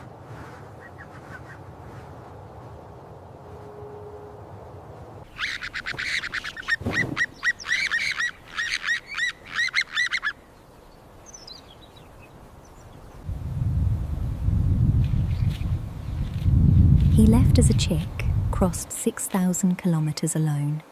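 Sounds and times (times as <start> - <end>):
bird giving harsh calls: 5.3 - 10.4.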